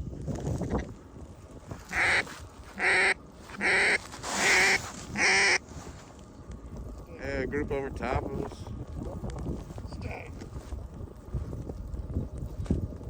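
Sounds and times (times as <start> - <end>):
duck call quacks: 1.9 - 2.2, 2.8 - 5.6.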